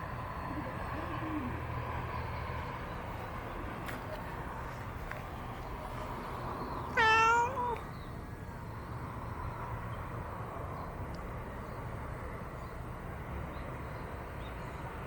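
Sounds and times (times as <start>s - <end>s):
cat meowing: 6.9s - 7.8s.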